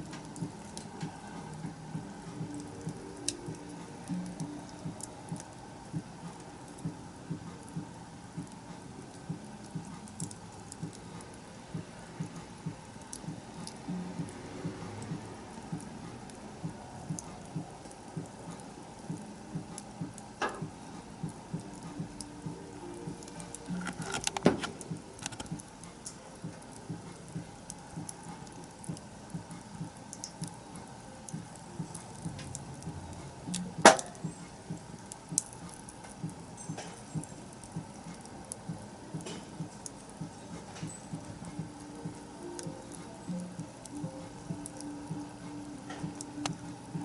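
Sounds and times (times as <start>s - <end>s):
wood fire crackling: 0.0s - 47.0s
loud sharp fire snaps: 33.5s - 38.6s.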